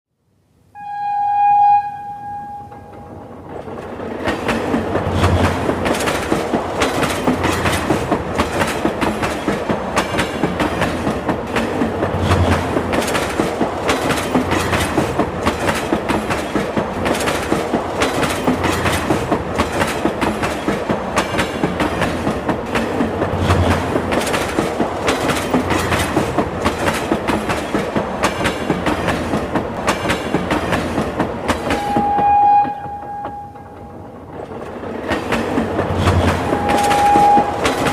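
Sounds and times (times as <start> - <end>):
train horn: 0.7 - 3.1, 31.7 - 33.8, 36.4 - 37.9
train wheels clattering: 2.5 - 37.9.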